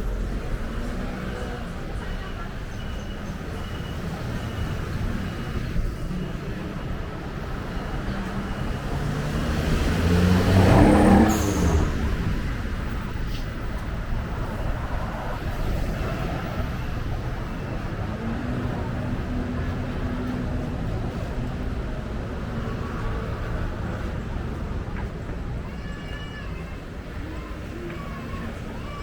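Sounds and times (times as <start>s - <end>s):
city street traffic: 0.0s - 29.0s
vehicle engine passing close: 8.1s - 13.2s.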